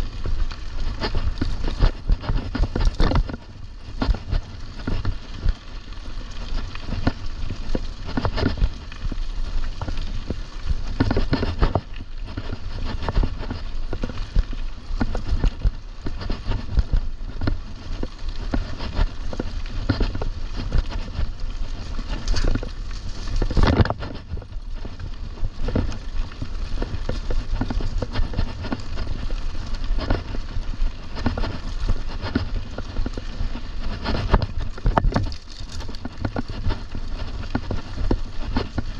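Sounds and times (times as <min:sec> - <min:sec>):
bike knocks and rattles: 0:00.0 - 0:38.9
mountain bike rumbling on trail: 0:00.0 - 0:38.9.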